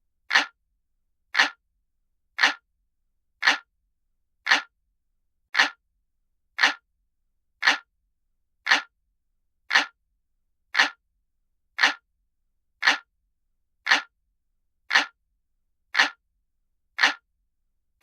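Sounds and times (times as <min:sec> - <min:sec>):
clock ticking: 0:00.3 - 0:00.6, 0:01.4 - 0:01.6, 0:02.4 - 0:02.6, 0:03.4 - 0:03.7, 0:04.5 - 0:04.7, 0:05.6 - 0:05.8, 0:06.6 - 0:06.8, 0:07.6 - 0:07.9, 0:08.7 - 0:08.9, 0:09.7 - 0:10.0, 0:10.8 - 0:11.0, 0:11.8 - 0:12.0, 0:12.8 - 0:13.1, 0:13.9 - 0:14.1, 0:14.9 - 0:15.2, 0:16.0 - 0:16.2, 0:17.0 - 0:17.2.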